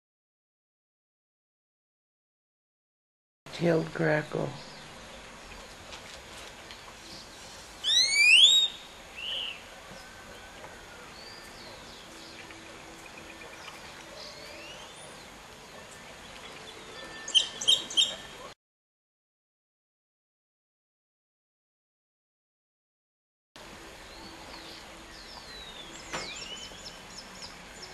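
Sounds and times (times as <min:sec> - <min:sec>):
faint calls of other birds: 0:06.8 - 0:18.5
grackle rising whistle call: 0:07.8 - 0:09.6
sharp loud bird notes: 0:07.8 - 0:09.6.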